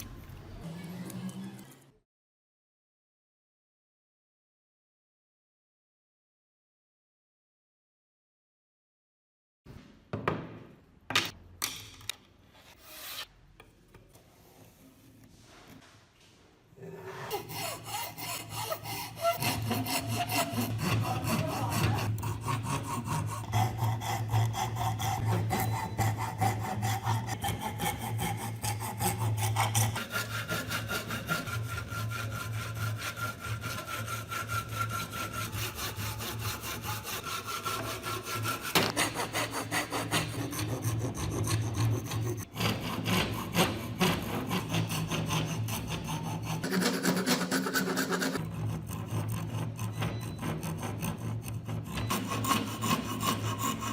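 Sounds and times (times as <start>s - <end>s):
wood rasping with rapid strokes: 17.2s - 53.9s.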